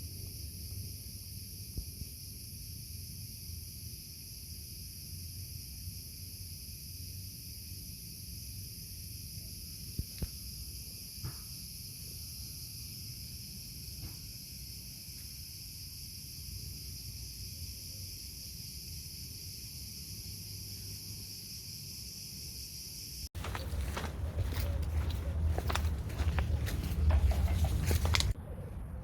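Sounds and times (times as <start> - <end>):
high insect chorus: 0.0 - 28.4.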